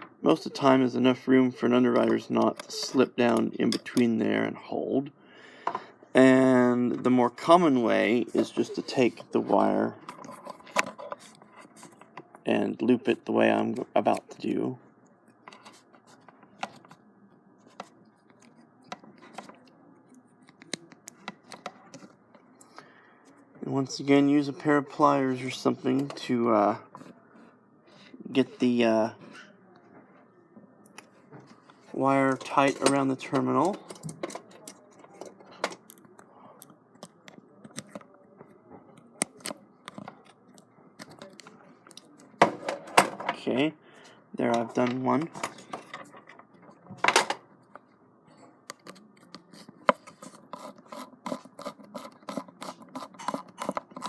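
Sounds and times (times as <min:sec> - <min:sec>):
wire clicking and scratching: 0:07.0 - 0:12.5, 0:17.6 - 0:22.7, 0:30.9 - 0:38.2, 0:38.9 - 0:42.9, 0:48.6 - 0:54.0.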